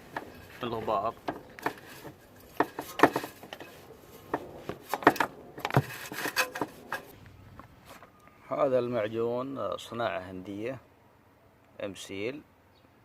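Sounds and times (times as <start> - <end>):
scraping and knocking on metal: 0.0 - 7.1.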